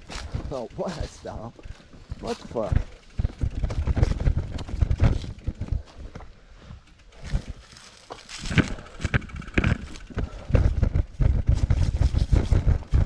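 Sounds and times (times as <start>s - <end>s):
horse hooves walking: 0.0s - 13.0s
low rumbling on microphone: 1.1s - 6.3s.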